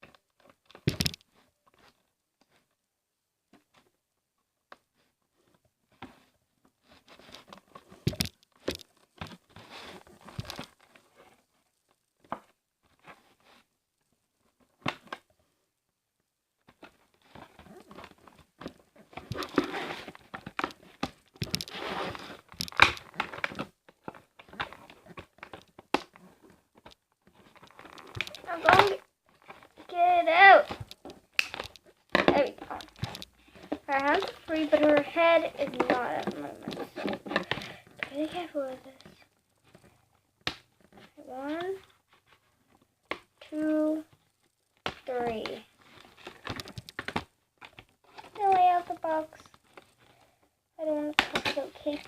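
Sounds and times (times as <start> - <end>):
plastic packaging crinkling: 27.3 - 29.8
clicks and snaps: 30.7 - 31.9, 32.6 - 34.4.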